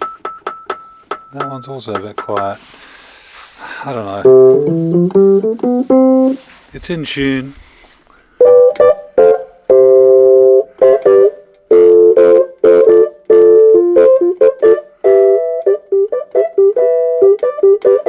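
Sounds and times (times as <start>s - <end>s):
electric reed keyboard playing: 3.8s - 6.4s, 8.4s - 18.0s.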